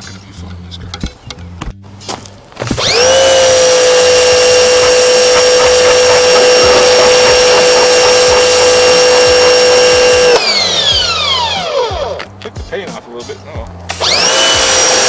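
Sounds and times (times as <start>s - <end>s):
electric pressure washer running: 2.7s - 12.2s, 13.9s - 15.0s
water jet spraying with hiss: 2.8s - 10.7s, 13.9s - 15.0s.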